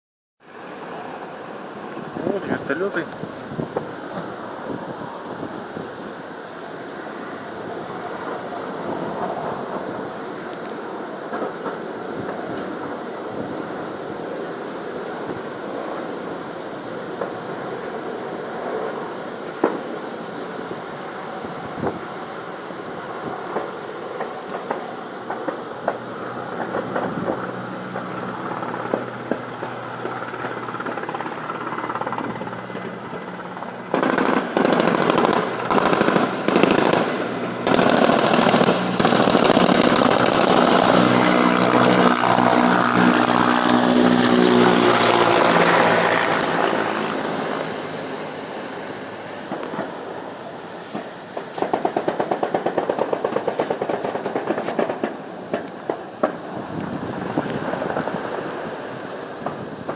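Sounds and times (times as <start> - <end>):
helicopter flying past: 0.6 - 59.9
gunfire cracks: 33.9 - 41.4.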